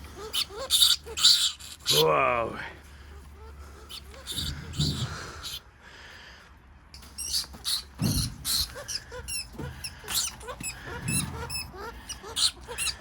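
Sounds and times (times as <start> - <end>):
rats squeaking: 0.0 - 2.1, 3.1 - 5.6, 7.0 - 13.0
dull thuds: 7.5 - 8.7.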